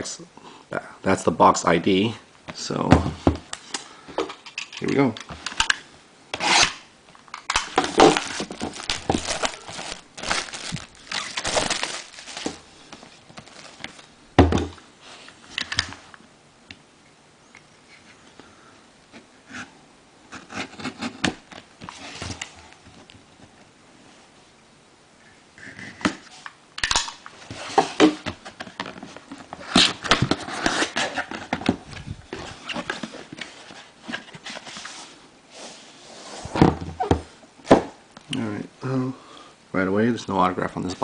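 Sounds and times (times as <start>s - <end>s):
plastic wrapping crinkling and tearing: 7.4s - 14.1s.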